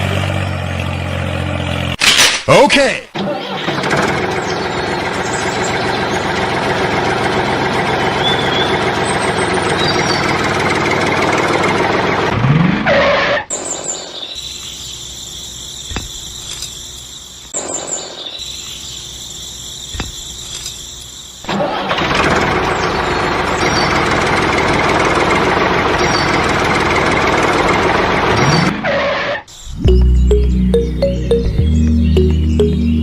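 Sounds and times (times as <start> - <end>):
engine running loudly: 3.8 - 12.4.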